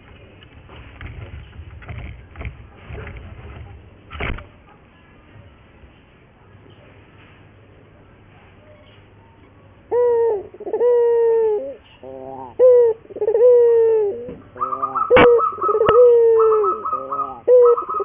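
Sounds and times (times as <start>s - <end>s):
doves cooing: 9.9s - 18.0s
high rapidly pulsing bird call: 14.6s - 18.0s.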